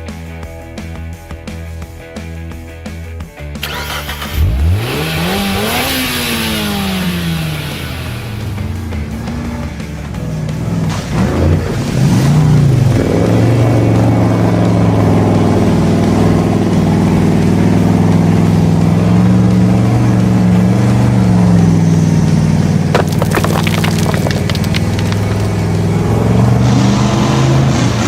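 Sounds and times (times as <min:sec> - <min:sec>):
vehicle engine running: 0:03.6 - 0:11.6
clattering crackles: 0:23.0 - 0:25.8.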